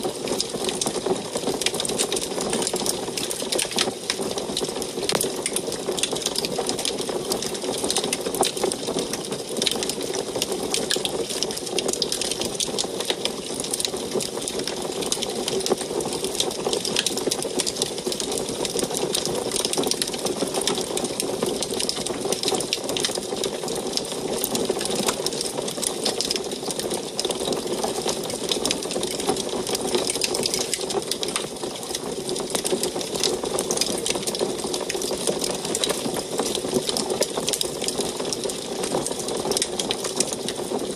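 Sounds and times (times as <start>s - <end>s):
wood fire crackling in stove: 0.3s - 29.2s.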